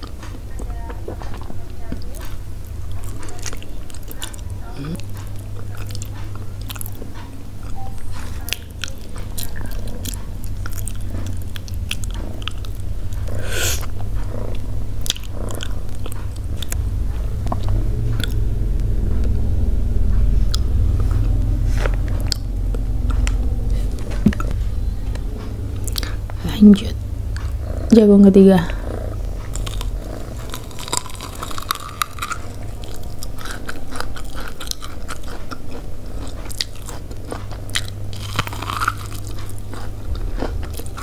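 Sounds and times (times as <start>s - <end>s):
chewing and mouth sounds: 0.0s - 28.0s, 28.6s - 41.0s
low rumble: 0.0s - 41.0s.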